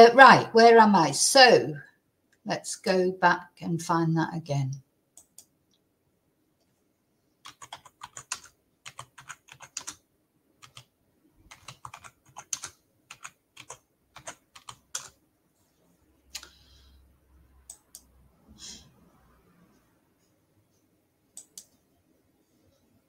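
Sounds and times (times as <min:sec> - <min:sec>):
typing on computer keyboard: 0:07.4 - 0:10.0, 0:10.6 - 0:10.9, 0:11.5 - 0:15.2.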